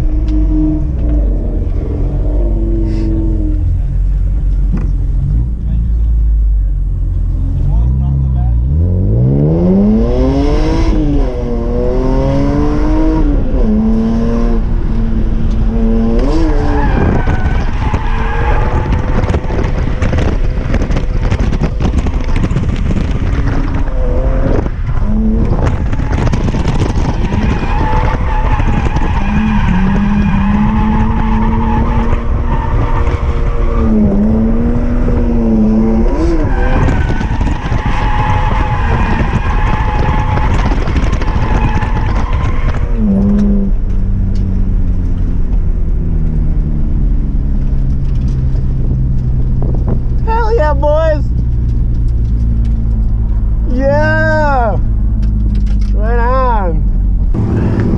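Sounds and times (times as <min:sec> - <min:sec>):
car engine at high revs: 0:00.0 - 0:57.9
tyres skidding and squealing: 0:14.5 - 0:43.8, 0:49.6 - 0:57.9.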